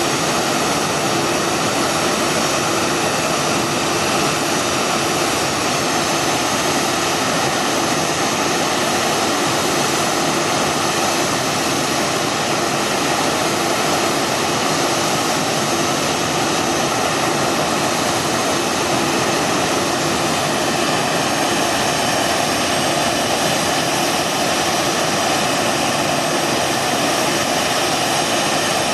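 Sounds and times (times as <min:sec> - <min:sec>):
jet engines running with whine: 0:00.0 - 0:28.9.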